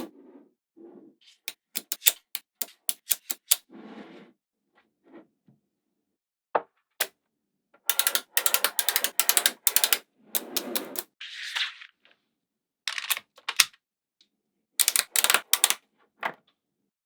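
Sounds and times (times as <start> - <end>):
magnetic balls clicking together: 1.5 - 3.6, 7.9 - 11.0, 14.8 - 15.8.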